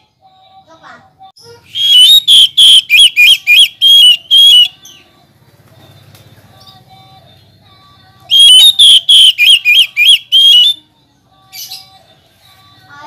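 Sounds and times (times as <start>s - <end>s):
bird singing whistled notes: 1.7s - 5.0s, 8.3s - 10.9s.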